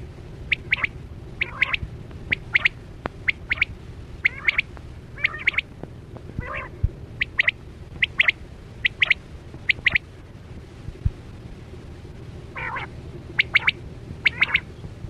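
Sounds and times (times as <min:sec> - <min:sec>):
rough scratchy bird call: 0:00.5 - 0:02.7, 0:05.2 - 0:05.6
quail three-note calls: 0:00.5 - 0:05.7, 0:06.4 - 0:10.1, 0:12.5 - 0:14.7.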